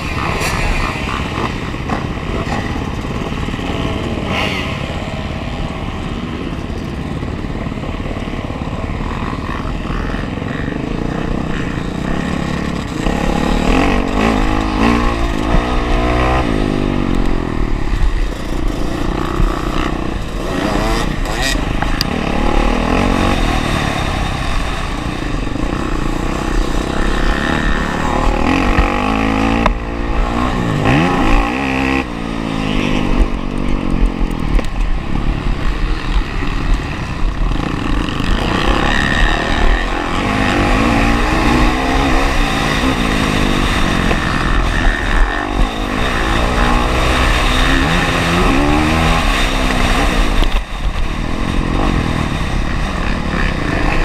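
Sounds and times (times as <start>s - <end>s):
motocross engine revving: 0.0s - 54.0s.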